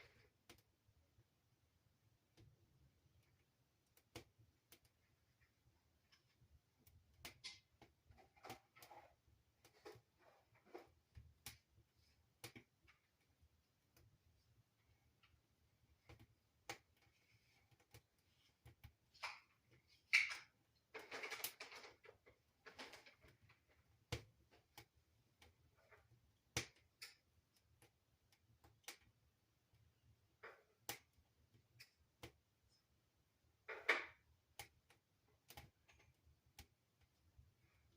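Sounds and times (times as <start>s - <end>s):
wood fire crackling and popping: 2.3s - 14.2s, 15.0s - 32.5s.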